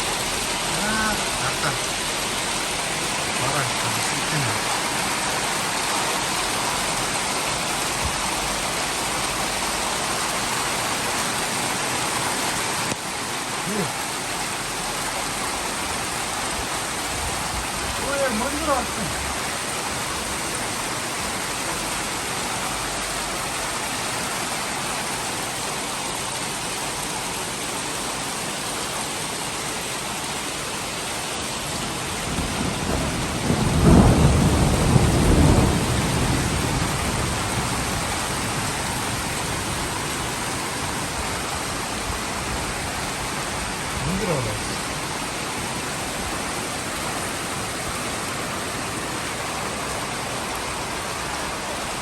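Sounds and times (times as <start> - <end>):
rain with small hail: 0.0 - 52.0
thunder rumbling: 32.2 - 39.7.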